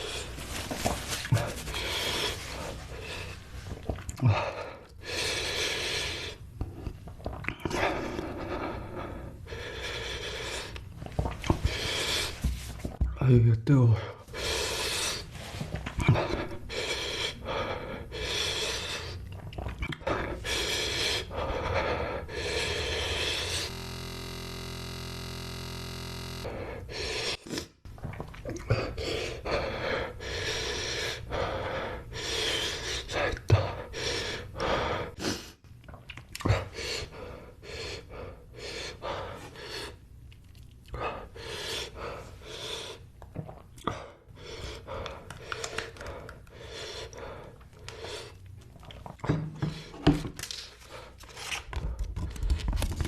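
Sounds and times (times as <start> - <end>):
person gasping and panting: 20.0 - 23.7
steady buzzing tone: 22.5 - 26.9.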